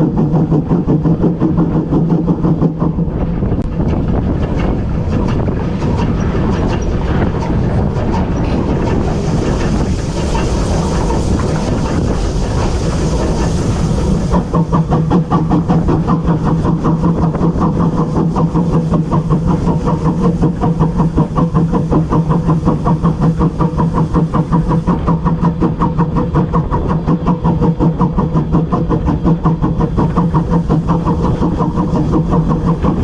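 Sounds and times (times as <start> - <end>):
locomotive rhythmic clatter: 0.0 - 33.0
hiss: 7.9 - 33.0
steady hum with quick beat: 8.9 - 33.0.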